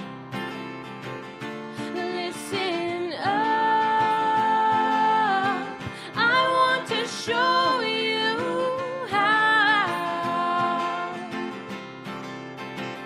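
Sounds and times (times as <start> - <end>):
guitar accompaniment: 0.0 - 13.0.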